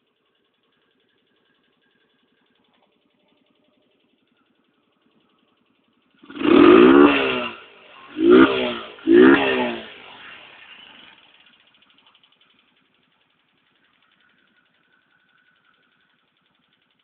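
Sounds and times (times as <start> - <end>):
motorcycle engine idling: 0.0 - 17.0
motorcycle engine revving: 0.0 - 17.0.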